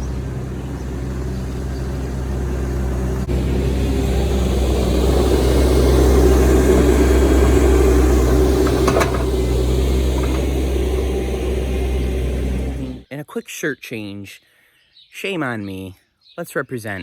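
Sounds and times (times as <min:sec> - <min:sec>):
heavy machine engine running: 0:00.0 - 0:13.0
faint clicks: 0:03.2 - 0:13.0.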